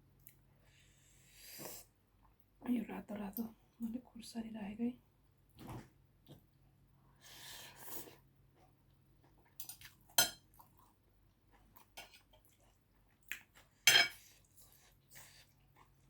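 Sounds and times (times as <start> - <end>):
cutlery clinking against a dish: 9.6 - 10.5, 13.8 - 14.2.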